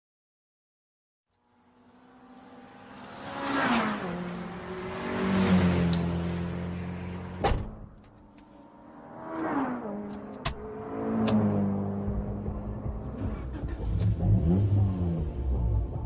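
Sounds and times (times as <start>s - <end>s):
simulated car engine revving: 1.5s - 7.4s, 8.5s - 16.0s.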